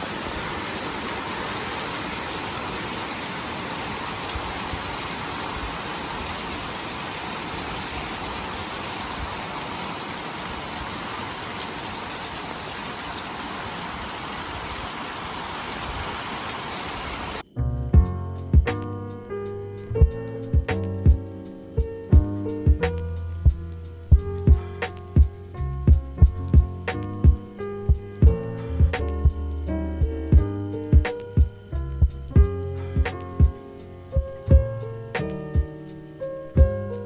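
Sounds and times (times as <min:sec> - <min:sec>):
steady rain falling: 0:00.0 - 0:17.4
music with strong beat: 0:18.0 - 0:36.0, 0:36.6 - 0:36.9.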